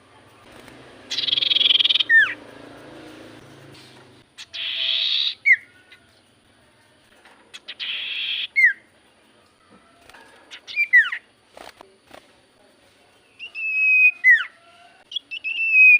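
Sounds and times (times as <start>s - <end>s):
bird rasping chatter: 0.4s - 2.7s, 4.2s - 6.1s, 7.5s - 8.8s, 10.1s - 11.7s
bird whistles: 1.1s - 2.4s, 4.4s - 5.8s, 7.6s - 8.8s, 10.5s - 11.2s, 13.4s - 15.9s.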